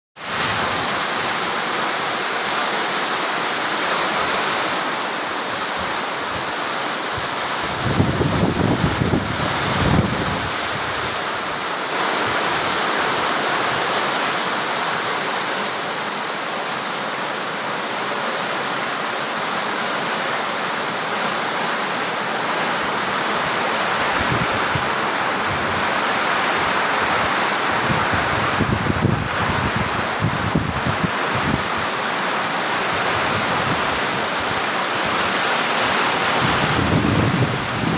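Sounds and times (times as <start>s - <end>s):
heavy rain pouring: 0.2s - 37.9s
wind buffeting microphone: 7.7s - 11.2s, 23.4s - 31.8s, 36.3s - 37.9s.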